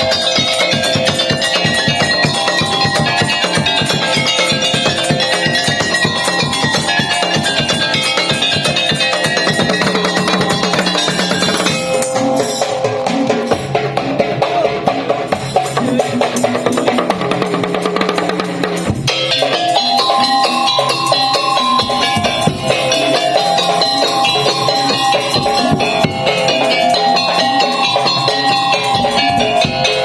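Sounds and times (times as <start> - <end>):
held melodic notes: 0.0 - 30.0
wooden slit drums and drums: 0.0 - 30.0.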